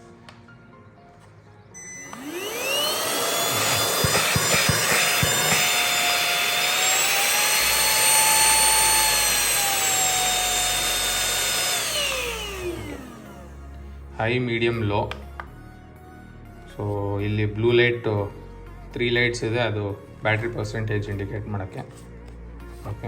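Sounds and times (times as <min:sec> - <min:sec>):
handheld vacuum cleaner motor: 0:01.8 - 0:13.5.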